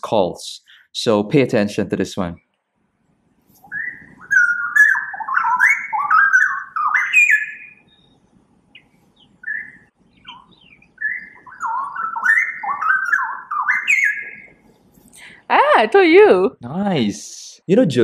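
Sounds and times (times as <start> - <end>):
bird warbling song: 3.5 - 15.1.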